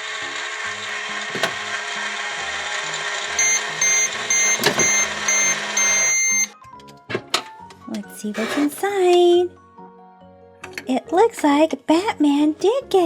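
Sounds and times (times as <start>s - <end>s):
toy microwave humming: 0.0s - 6.6s
short high beeps: 3.4s - 6.5s
long beep: 3.4s - 6.6s.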